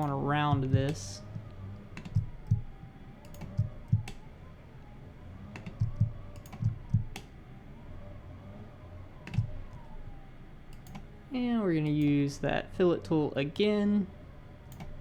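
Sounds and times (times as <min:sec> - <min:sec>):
mouse and keyboard clicking: 0:02.0 - 0:04.3, 0:05.6 - 0:07.3.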